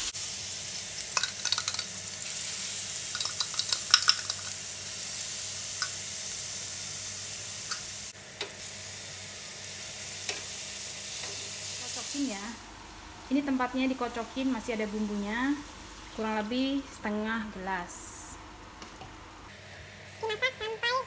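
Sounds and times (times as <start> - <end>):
oil crackling and popping: 0.0 - 6.7
paste sizzling in hot oil: 0.0 - 12.4.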